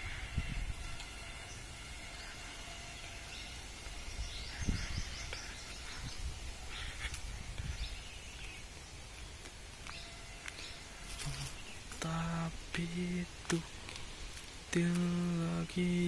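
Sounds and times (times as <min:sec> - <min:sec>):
faint steady high tone: 0:00.0 - 0:06.7
birds chirping: 0:00.0 - 0:16.0.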